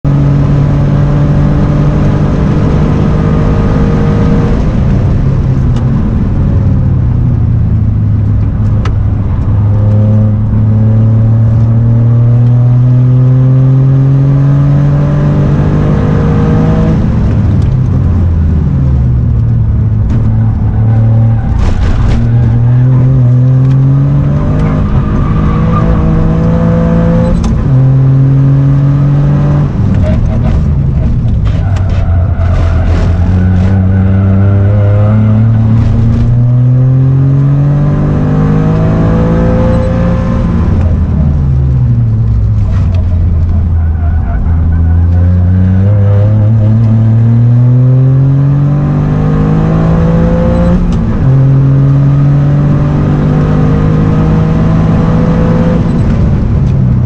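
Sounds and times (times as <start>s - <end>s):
car engine at full throttle: 0.0s - 57.0s.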